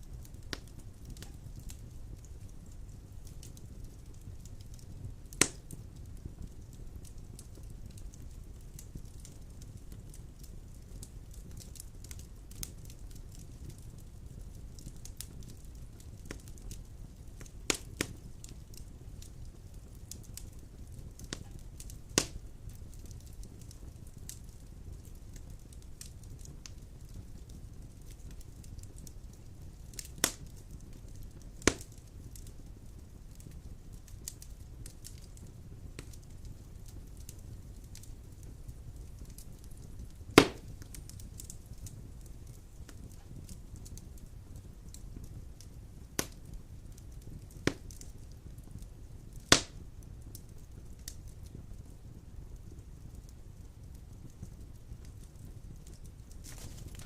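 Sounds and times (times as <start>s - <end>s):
low rumble of fire: 0.0s - 57.0s
small crackles of logs: 0.0s - 57.0s
loud sharp fire pops: 4.8s - 6.6s, 17.4s - 18.8s, 21.2s - 22.5s, 29.9s - 31.0s, 31.6s - 32.5s, 39.2s - 43.2s, 46.2s - 46.5s, 47.4s - 48.1s, 49.4s - 49.8s
sharp loud pop of logs: 40.4s - 40.7s, 49.5s - 49.7s.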